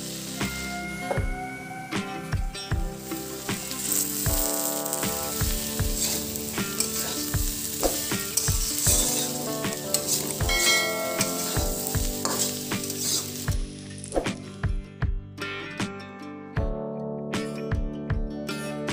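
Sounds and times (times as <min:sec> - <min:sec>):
vegetables sizzling in hot oil: 0:00.0 - 0:01.2, 0:02.9 - 0:14.3
metal spatula stirring: 0:03.1 - 0:14.1.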